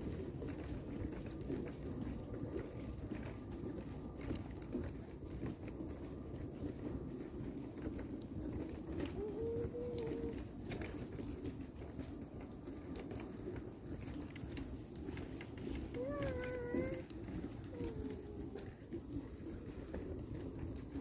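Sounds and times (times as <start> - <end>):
dove cooing: 9.0 - 10.4, 15.9 - 19.8.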